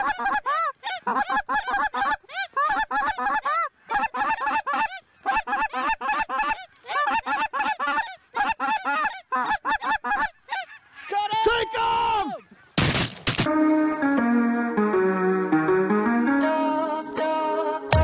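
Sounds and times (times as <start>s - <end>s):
geese honking: 0.0s - 12.8s.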